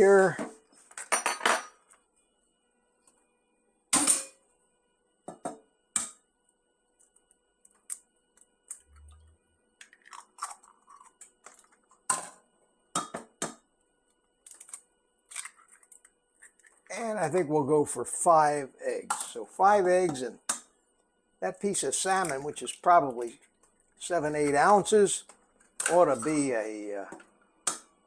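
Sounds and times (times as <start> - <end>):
kitchenware clinking: 1.0 - 1.9.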